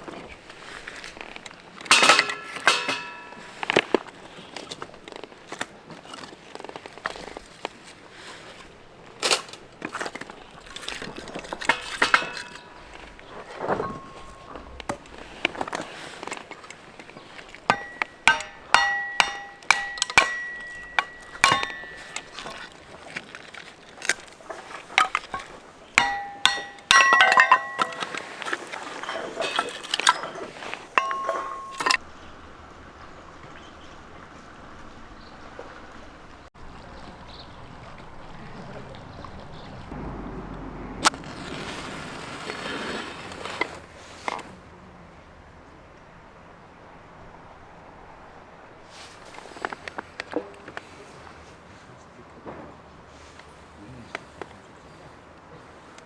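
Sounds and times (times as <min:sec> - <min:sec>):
metal gear knocking and clinking: 0:01.8 - 0:03.8, 0:10.6 - 0:15.8, 0:17.5 - 0:32.0.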